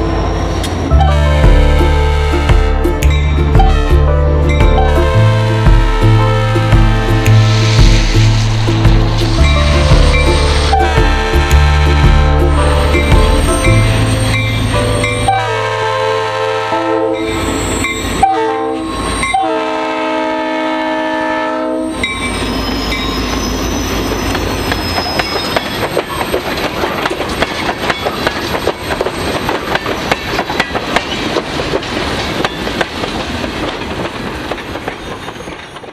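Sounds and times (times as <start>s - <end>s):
train wheel noise: 0.0s - 15.4s, 22.0s - 35.9s
locomotive air horn blasts: 0.9s - 8.6s, 10.4s - 14.5s, 15.2s - 22.0s
wheels clicking over rail joints: 24.2s - 35.9s.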